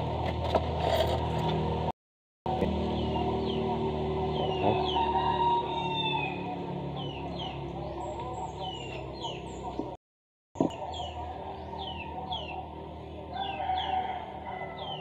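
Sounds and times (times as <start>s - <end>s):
birds chirping: 2.5s - 10.0s, 10.6s - 15.0s.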